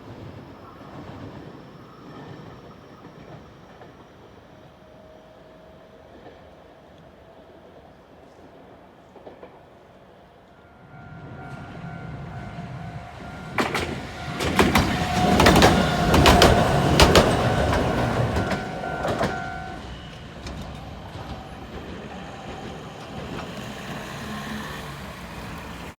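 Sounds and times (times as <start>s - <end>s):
train rumbling past: 0.0s - 26.0s
wheel clacks over rail joints: 13.4s - 24.0s.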